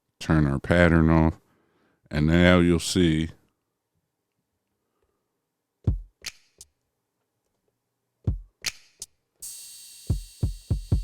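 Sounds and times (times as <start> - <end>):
kick drum hits: 5.9 - 6.2, 8.3 - 8.5, 10.1 - 11.0
snare or hi-hat hit: 5.9 - 6.7, 8.3 - 11.0
cymbal ringing: 9.4 - 11.0.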